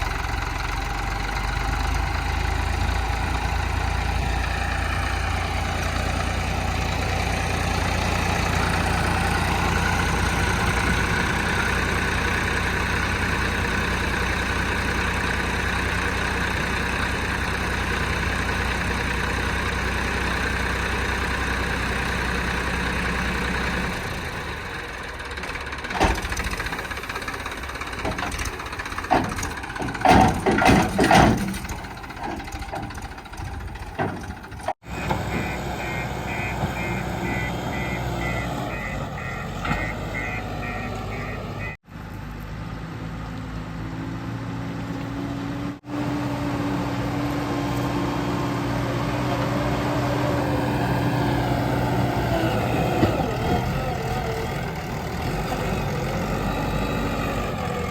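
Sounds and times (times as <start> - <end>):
diesel machinery engine running: 0.0 - 57.9
loud knocks and clanks: 27.9 - 35.5.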